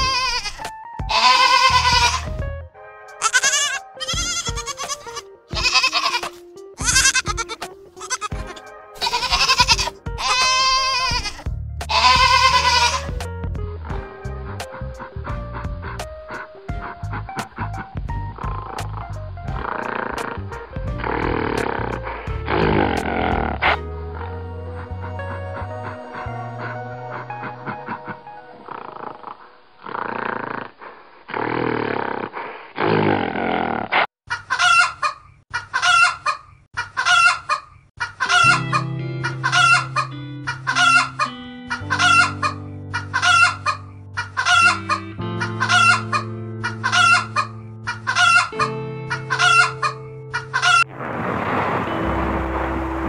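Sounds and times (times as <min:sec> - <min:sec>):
background music: 0:00.0 - 0:29.7, 0:38.3 - 0:50.9.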